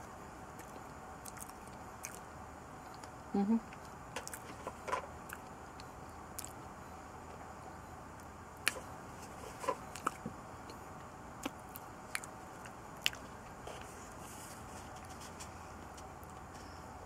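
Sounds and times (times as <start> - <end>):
mouth clicks and smacks: 0.6 - 2.2, 5.3 - 6.6, 9.9 - 10.3, 11.4 - 13.3
person chewing: 0.6 - 2.2, 3.7 - 4.5, 5.2 - 6.6, 9.6 - 10.8, 11.4 - 14.2.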